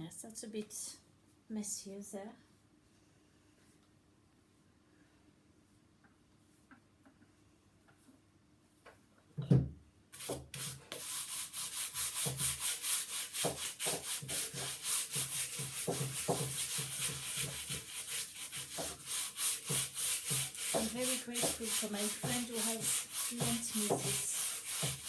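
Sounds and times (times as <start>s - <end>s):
sandpaper rubbing on wood: 10.2s - 25.0s
knock: 15.6s - 16.6s, 22.2s - 22.5s, 23.4s - 24.2s.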